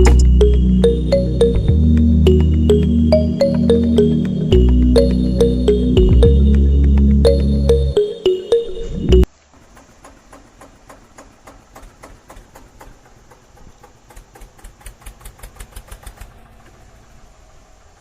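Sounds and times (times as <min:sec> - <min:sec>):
small engine ticking: 0:09.6 - 0:16.8.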